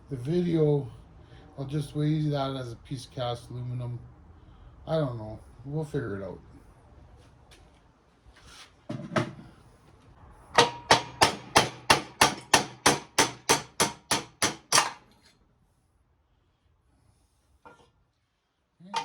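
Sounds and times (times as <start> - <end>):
hammer beating on metal: 10.6 - 15.0.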